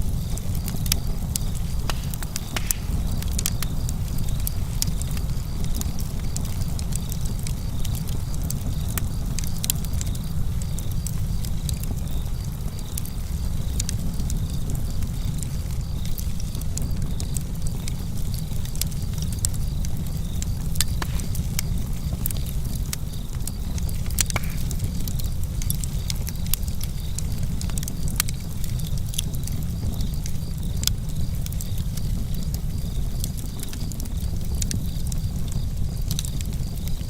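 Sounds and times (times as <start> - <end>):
steady low rumble: 0.0 - 27.9
campfire crackling: 0.0 - 37.0.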